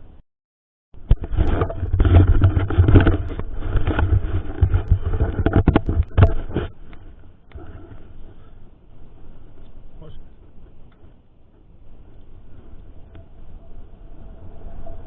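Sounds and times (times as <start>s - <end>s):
mountain bike rattling on trail: 1.1s - 9.5s.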